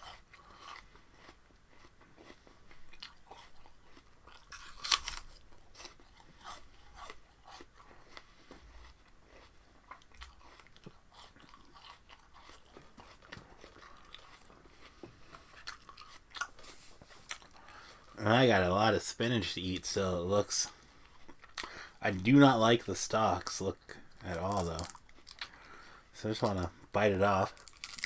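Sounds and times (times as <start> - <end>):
crunchy chewing of raw stalks: 0.0 - 18.2, 24.2 - 25.8, 27.3 - 28.0.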